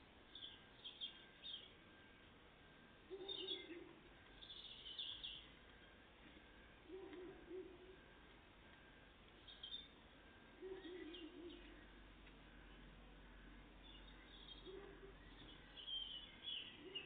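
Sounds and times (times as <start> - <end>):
low wavering bird call: 3.1 - 5.5, 6.8 - 8.1, 10.5 - 11.9, 14.2 - 17.0
tits chirping: 4.4 - 5.6.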